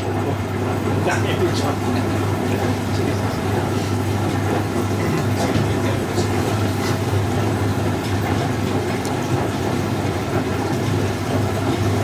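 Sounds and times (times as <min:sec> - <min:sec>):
washing machine running: 0:00.0 - 0:12.0.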